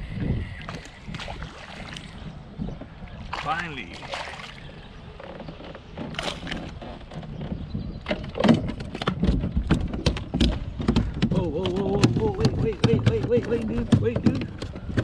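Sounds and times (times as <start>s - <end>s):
gear clicking and knocking on kayak: 5.1s - 15.0s
heavy low thumps: 9.4s - 15.0s.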